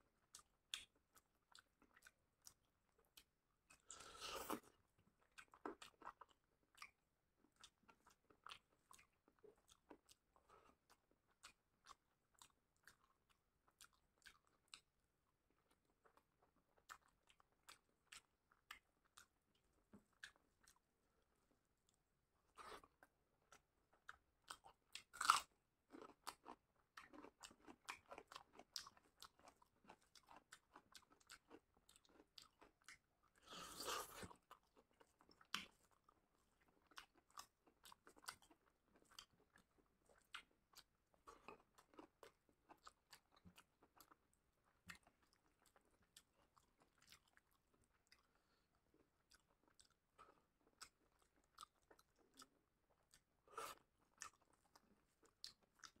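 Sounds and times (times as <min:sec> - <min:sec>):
person chewing and crunching food: 0:00.0 - 0:56.0
loud crunch of onion bite: 0:25.0 - 0:28.0.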